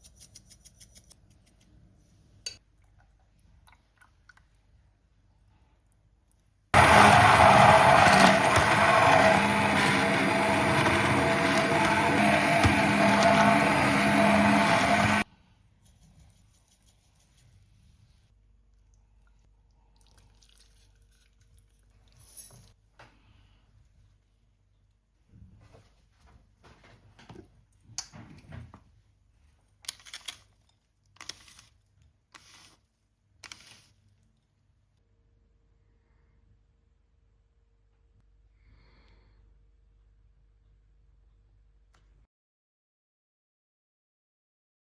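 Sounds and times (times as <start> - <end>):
kitchen appliance motor running: 6.8 - 15.3
handling scrapes and rustles: 29.8 - 34.2.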